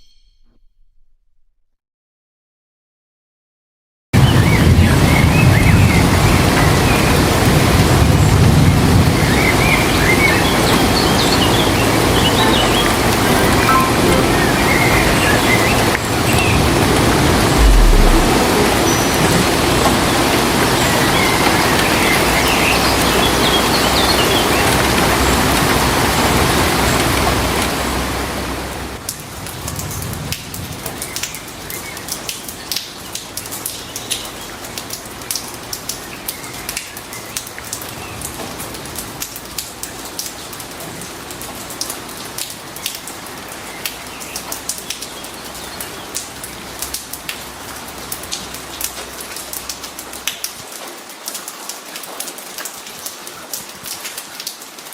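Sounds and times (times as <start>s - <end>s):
heavy rain hissing: 4.5s - 28.7s
raindrops pattering: 29.0s - 54.9s.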